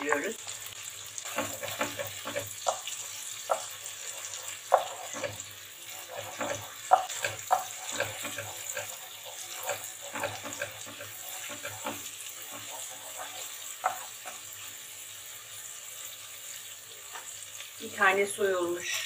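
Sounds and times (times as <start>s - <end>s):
vegetables sizzling in butter: 0.0s - 19.0s
wooden spoon scraping pot: 1.2s - 14.7s
spoon knocking against pot: 6.3s - 8.9s.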